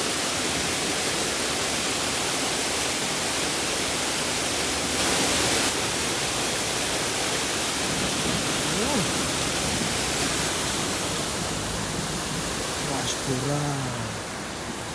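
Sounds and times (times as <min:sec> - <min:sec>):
flowing water rushing: 0:00.0 - 0:14.9.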